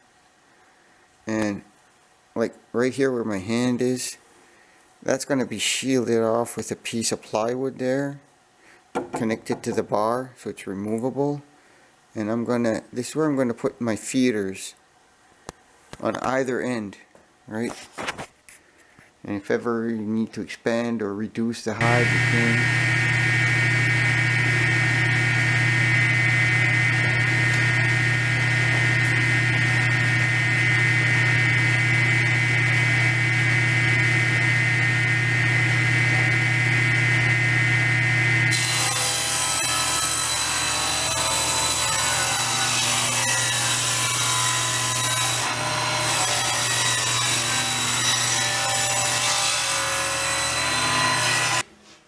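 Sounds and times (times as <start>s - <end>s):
saw cutting through wood: 21.8s - 37.7s, 38.3s - 51.6s
electric saw running: 21.8s - 43.2s, 43.8s - 48.5s, 49.7s - 51.6s.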